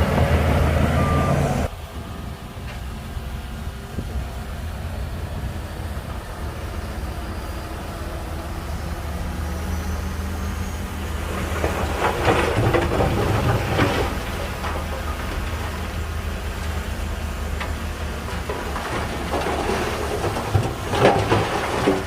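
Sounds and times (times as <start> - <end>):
bulldozer diesel engine running: 0.0 - 22.0
dense clattering and cracking: 11.1 - 22.0.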